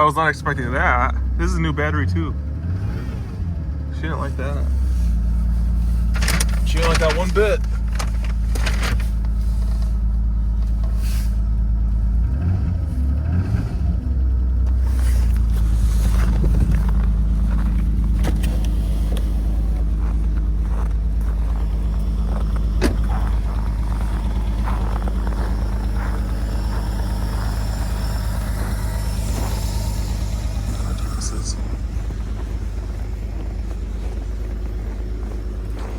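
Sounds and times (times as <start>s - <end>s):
car engine idling: 0.0s - 35.9s
low rumble: 13.6s - 35.9s.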